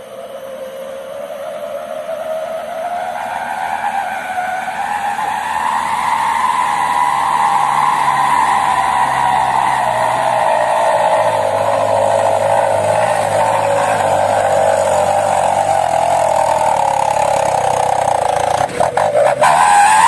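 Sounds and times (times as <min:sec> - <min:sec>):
truck engine running: 0:02.5 - 0:20.0.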